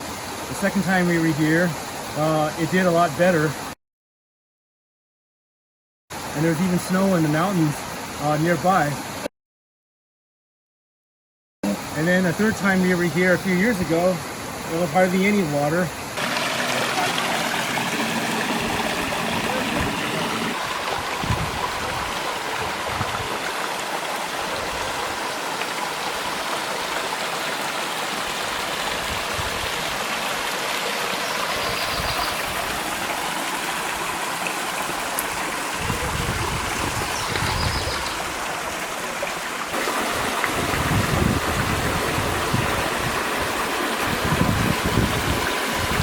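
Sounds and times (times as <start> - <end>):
waterfall rushing: 11.7 - 46.0
wind gusts on microphone: 18.3 - 23.6, 28.5 - 30.0, 31.6 - 32.8, 35.3 - 38.4, 39.8 - 46.0.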